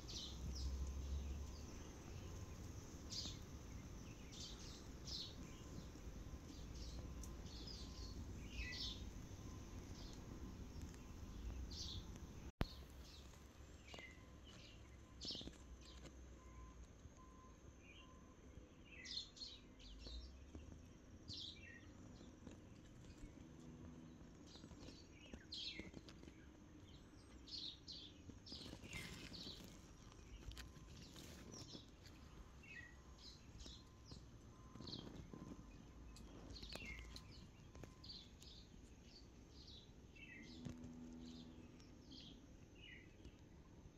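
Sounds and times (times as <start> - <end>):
low outdoor rumble: 0.0 - 16.2
small birds chirping: 0.0 - 43.9.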